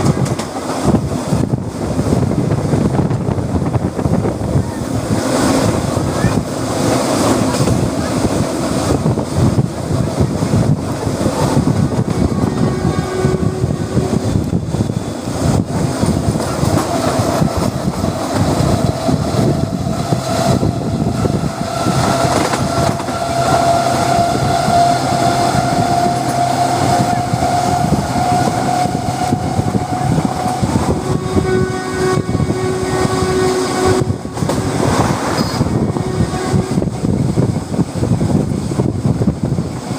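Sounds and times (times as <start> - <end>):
train rumbling on track: 0.0 - 39.9
long tone: 12.0 - 15.1, 18.9 - 36.9.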